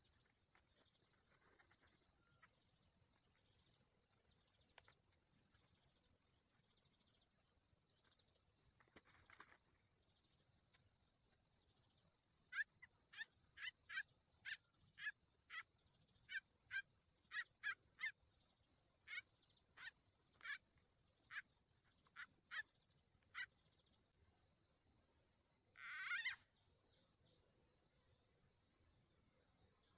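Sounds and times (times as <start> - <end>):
crickets droning: 0.0 - 29.9
animal chirping calls: 25.8 - 26.4.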